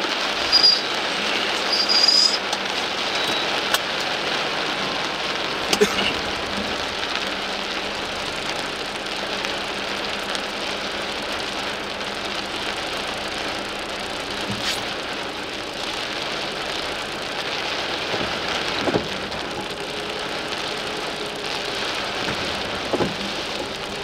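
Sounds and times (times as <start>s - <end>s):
heavy rain on car roof: 0.0s - 24.0s
short high squeaks: 0.5s - 0.9s, 1.6s - 2.5s, 3.1s - 3.6s.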